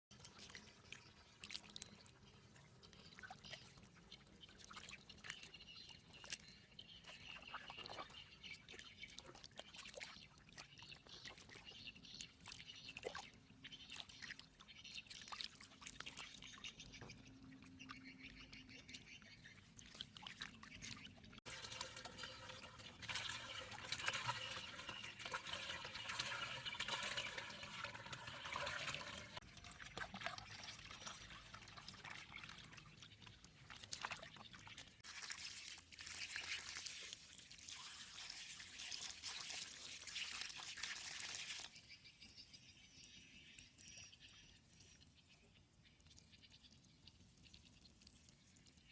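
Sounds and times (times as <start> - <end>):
water trickling and splashing: 0.1 - 48.9
water dripping: 19.8 - 41.7, 45.9 - 48.9.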